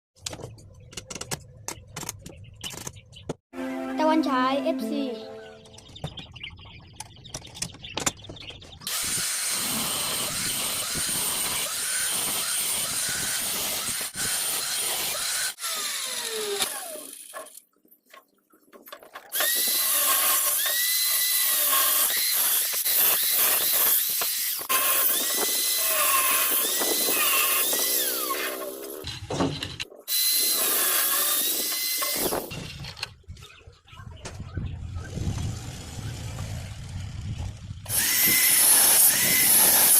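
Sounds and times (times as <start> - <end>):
power tool cutting steel: 8.9 - 17.6, 19.4 - 32.6, 37.9 - 39.9.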